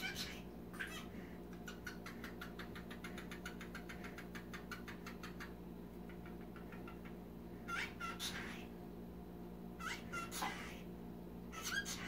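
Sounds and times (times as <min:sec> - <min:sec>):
cockatiel clicking: 0:01.5 - 0:07.1.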